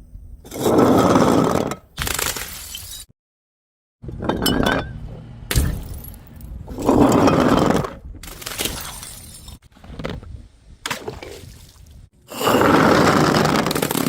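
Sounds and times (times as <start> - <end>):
glass bottles smashing: 2.3 - 3.1, 4.3 - 7.4, 8.4 - 9.6.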